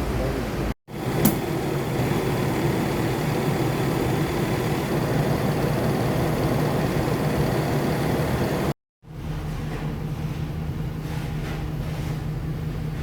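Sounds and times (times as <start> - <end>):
van engine hum: 0.9 - 8.8.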